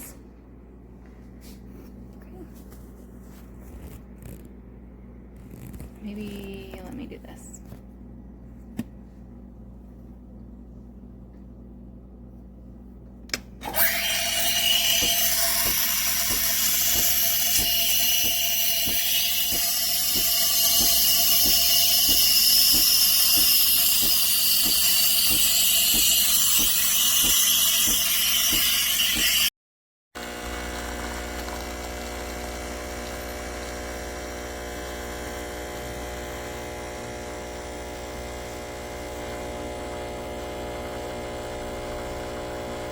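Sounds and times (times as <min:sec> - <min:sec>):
electric hum: 0:03.6 - 0:29.4, 0:30.2 - 0:42.9
pump ticking: 0:13.6 - 0:28.7
steam wand hissing: 0:13.6 - 0:29.5.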